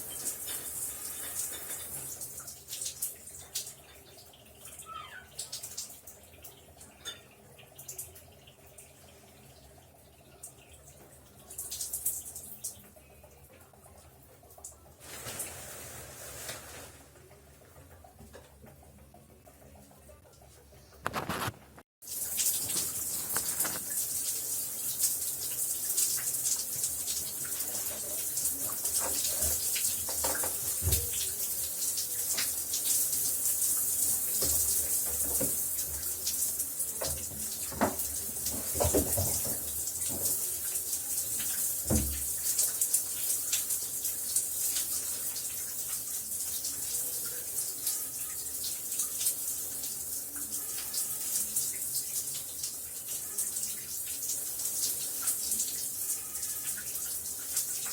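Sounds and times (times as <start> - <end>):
shower spray hissing: 0.0 - 2.2, 22.1 - 45.4.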